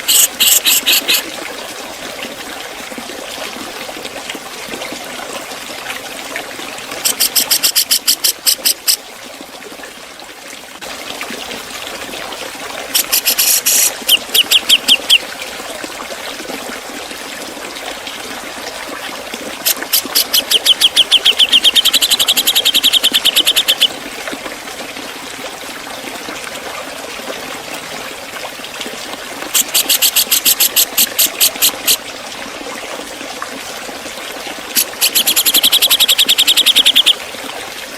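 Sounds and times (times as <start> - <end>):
bird rapid sharp calls: 0.0 - 1.2, 7.0 - 9.0, 13.0 - 15.2, 19.6 - 23.9, 29.6 - 32.0, 34.8 - 37.2
water trickling: 0.0 - 37.9.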